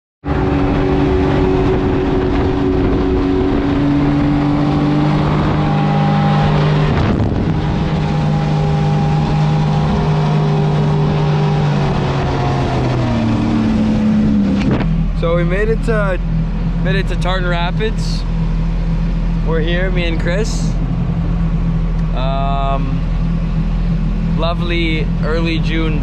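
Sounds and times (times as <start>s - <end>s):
motor engine running: 0.2s - 26.0s
wind on microphone: 0.3s - 17.4s.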